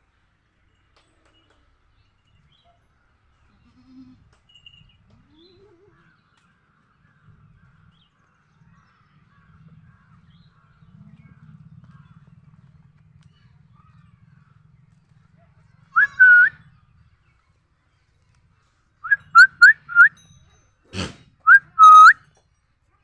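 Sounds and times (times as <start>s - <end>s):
small birds chirping: 19.1s - 20.1s.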